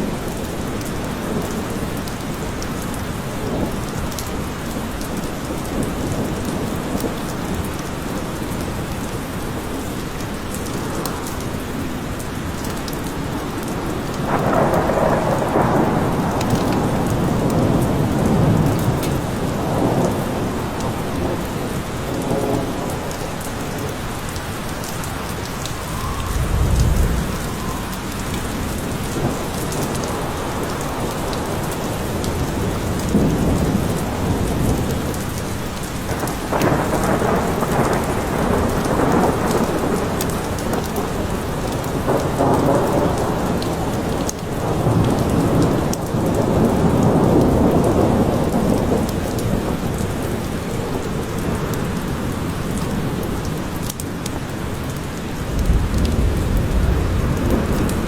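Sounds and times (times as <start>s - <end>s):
steady rain: 0.0s - 58.0s
thunder rumbling: 13.8s - 35.2s, 55.4s - 58.0s.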